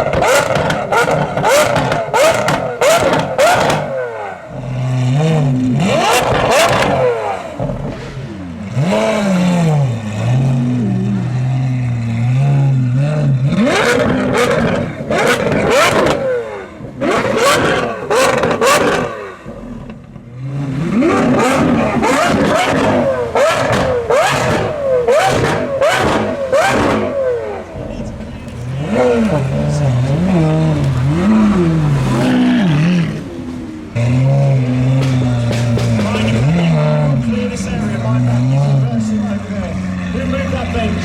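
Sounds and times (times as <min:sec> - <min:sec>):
car engine revving: 0:00.0 - 0:41.0
exhaust bangs and crackles: 0:00.0 - 0:41.0.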